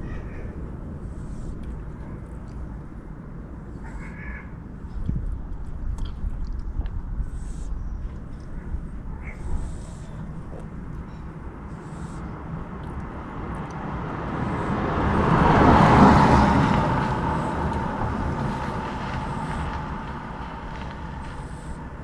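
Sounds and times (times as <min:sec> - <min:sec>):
vehicle passing by: 0:08.8 - 0:22.0.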